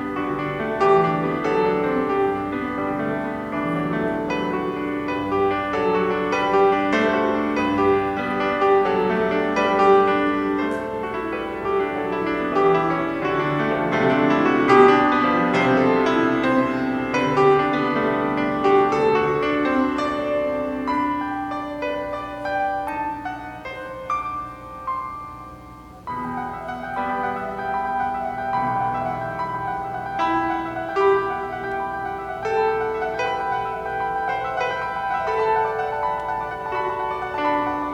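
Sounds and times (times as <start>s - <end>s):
slow piano piece: 0.0s - 37.9s.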